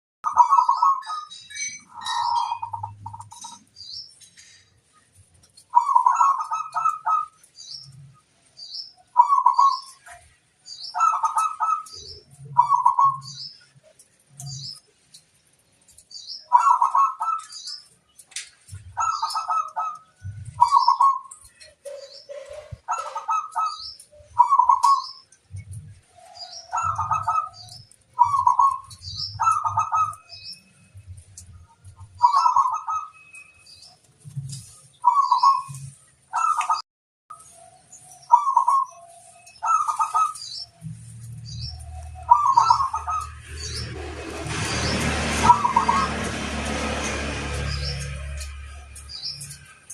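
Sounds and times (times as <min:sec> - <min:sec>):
small birds chirping: 0:00.2 - 0:49.9
dove cooing: 0:00.3 - 0:01.2, 0:01.9 - 0:03.6, 0:05.7 - 0:07.4, 0:10.9 - 0:13.4, 0:16.5 - 0:17.6, 0:18.9 - 0:25.2, 0:26.2 - 0:30.3, 0:32.2 - 0:33.1, 0:38.3 - 0:40.5, 0:42.2 - 0:46.3.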